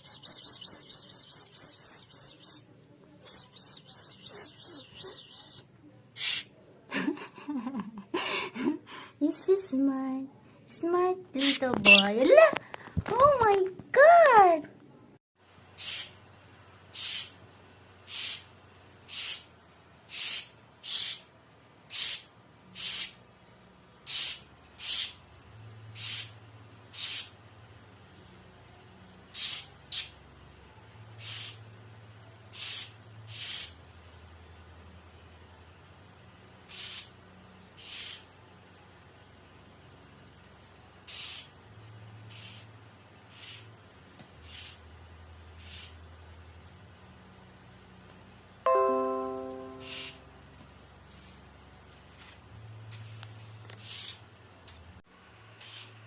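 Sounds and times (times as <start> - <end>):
bird hissing calls: 15.8 - 16.2, 16.9 - 17.4, 18.1 - 18.5, 19.1 - 19.5, 20.1 - 21.3, 21.9 - 23.2, 26.0 - 27.3, 29.3 - 30.1, 31.2 - 31.6, 32.5 - 33.8, 36.7 - 37.1, 37.8 - 38.3, 41.1 - 41.5, 42.3 - 42.7, 43.3 - 43.7, 44.4 - 44.8, 45.6 - 46.0, 53.0 - 54.2.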